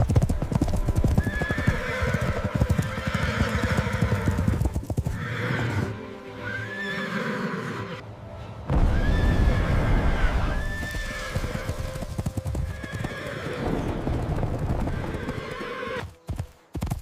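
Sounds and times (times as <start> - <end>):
horse hooves clip-clopping: 0.0 - 5.2, 10.6 - 17.0
background music: 0.0 - 17.0
horse whinnying: 1.2 - 8.0, 8.9 - 12.0, 12.6 - 13.9, 14.8 - 16.1.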